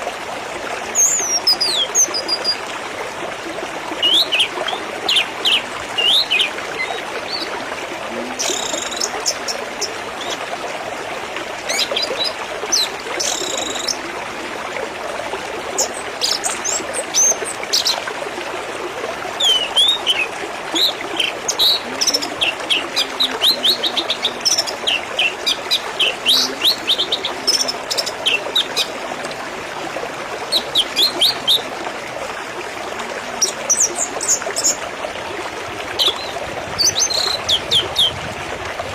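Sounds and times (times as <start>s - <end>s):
water trickling: 0.0s - 38.9s
birds chirping: 4.0s - 7.6s, 19.4s - 29.2s.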